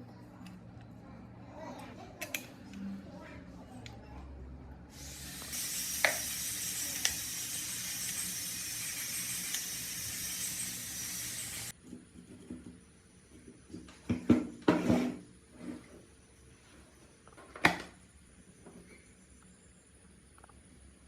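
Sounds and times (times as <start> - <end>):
pressurised spray hiss: 4.9 - 11.7.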